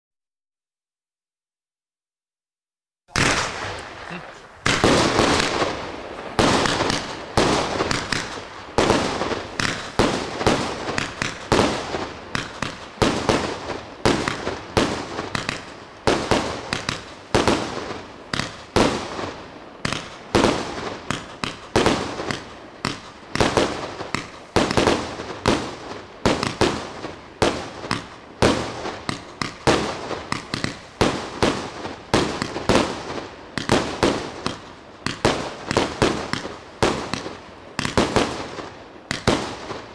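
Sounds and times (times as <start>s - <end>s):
firework battery bangs: 3.1s - 19.1s.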